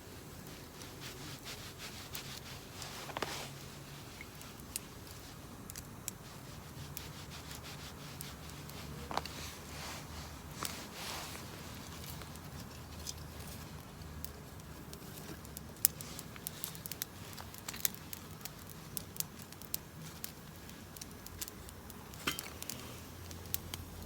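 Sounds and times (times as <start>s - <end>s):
light rubbing and scraping: 0.4s - 18.7s.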